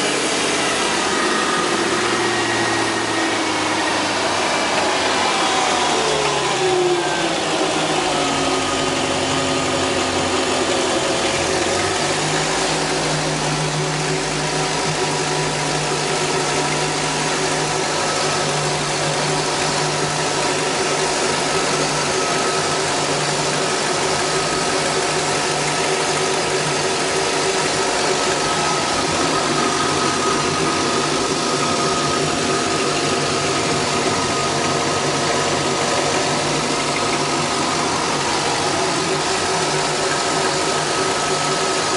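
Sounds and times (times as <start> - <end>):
boat engine idling: 0.0 - 41.9.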